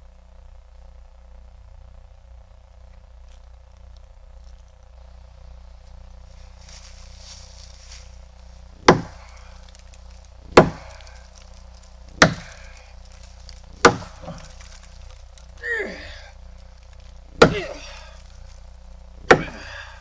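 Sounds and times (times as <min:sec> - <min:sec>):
axe chopping wood: 0:08.8 - 0:16.3, 0:17.3 - 0:18.3, 0:19.2 - 0:20.0.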